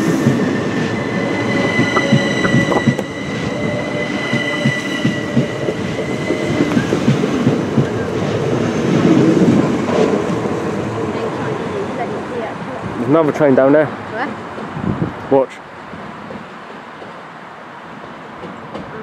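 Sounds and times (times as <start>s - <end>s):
train rumbling past: 0.0s - 19.0s
high steady whine: 1.2s - 6.8s.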